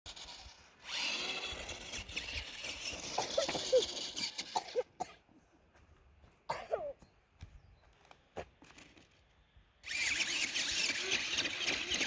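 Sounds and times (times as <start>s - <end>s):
short high squeaks: 0.1s - 4.8s
toy truck motor whirring: 0.1s - 4.8s, 9.8s - 12.0s.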